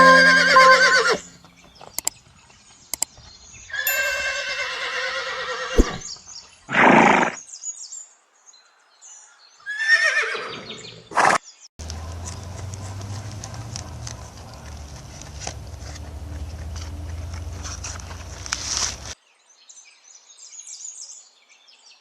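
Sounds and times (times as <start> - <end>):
horse whinnying: 0.0 - 1.3, 3.8 - 6.1, 6.7 - 7.4, 9.7 - 10.9
sharp clicks: 1.8 - 2.2, 2.9 - 3.1
horse breathy snort: 5.8 - 6.1.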